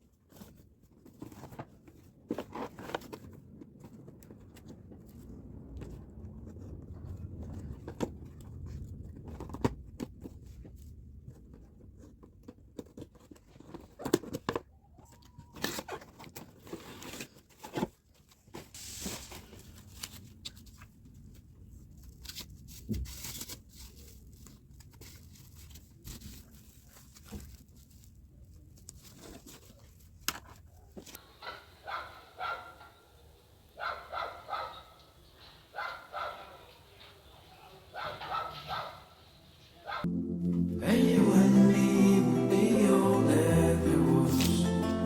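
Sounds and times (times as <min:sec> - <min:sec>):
rustling and tearing: 0:15.5 - 0:31.2.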